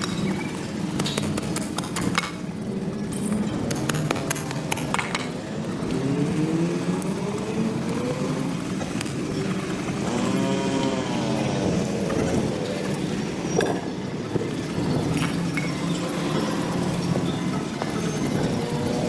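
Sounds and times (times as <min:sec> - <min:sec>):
low motor hum: 0:02.6 - 0:19.0.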